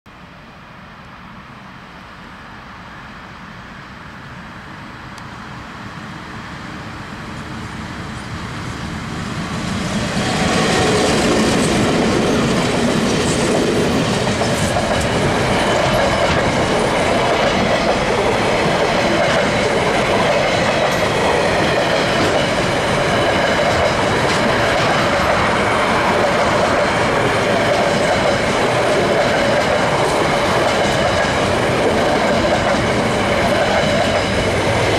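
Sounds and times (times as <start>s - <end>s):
diesel locomotive approaching: 0.2s - 34.9s
freight wagons rolling on rails: 9.7s - 34.9s.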